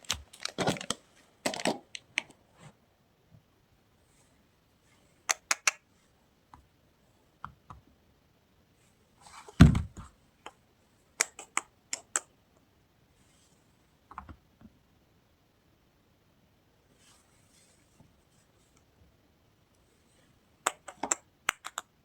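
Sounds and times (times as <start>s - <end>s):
loud thud: 9.6s - 10.0s
soap packaging taps and clicks: 20.7s - 21.9s.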